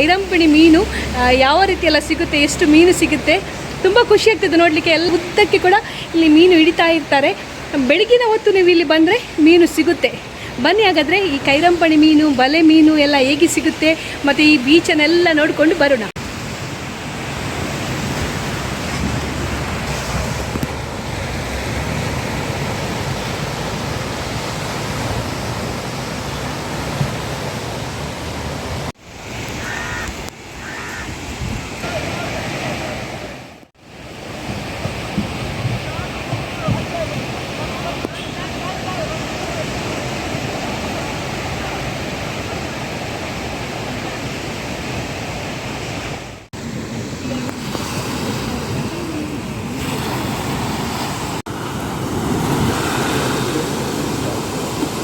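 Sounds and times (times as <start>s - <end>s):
sea surf rushing: 0.0s - 55.0s
wind on microphone: 17.4s - 33.3s.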